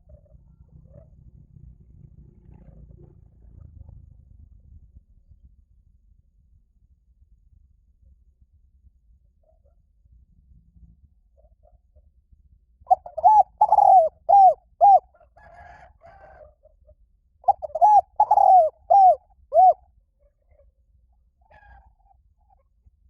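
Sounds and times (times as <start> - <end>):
dove cooing: 12.9 - 16.5, 17.5 - 19.8.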